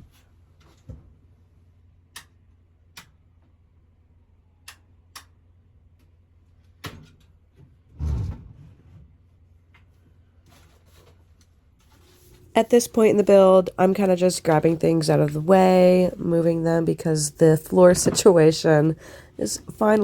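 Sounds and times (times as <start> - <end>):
heavy thump: 8.0 - 8.6.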